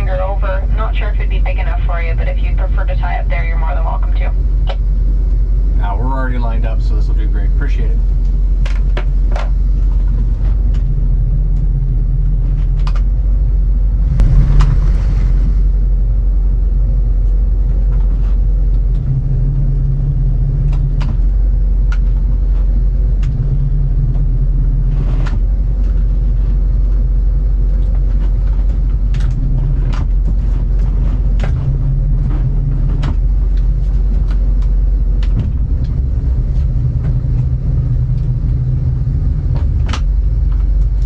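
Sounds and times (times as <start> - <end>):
motor boat engine rumbling: 0.0 - 41.0
brief rush: 14.0 - 15.9.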